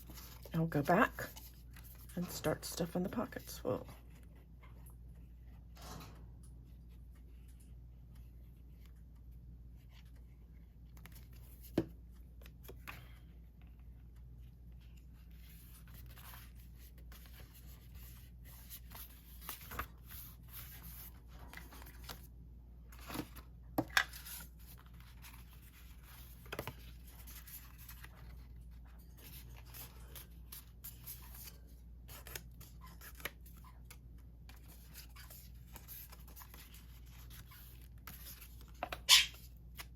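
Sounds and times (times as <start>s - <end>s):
paper rustling and scraping: 14.7s - 22.3s, 22.9s - 39.9s.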